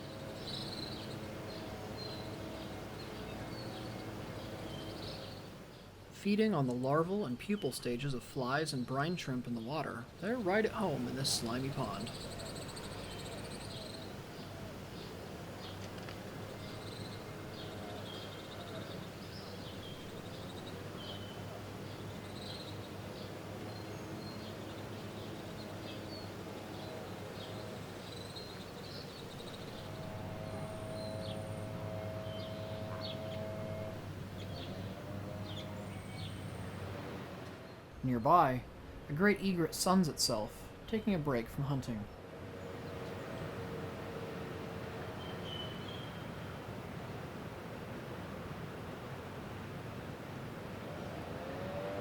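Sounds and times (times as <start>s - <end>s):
small birds chirping: 0.0s - 5.9s, 8.6s - 38.4s, 45.2s - 46.5s
low machine hum: 0.0s - 6.2s, 10.2s - 41.2s
pitched motor tone: 29.6s - 36.4s.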